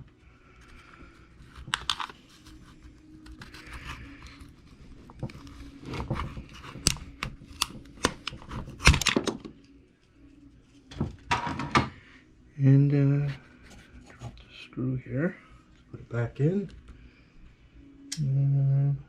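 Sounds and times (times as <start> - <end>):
clicks and knocks of small parts: 1.6 - 2.2.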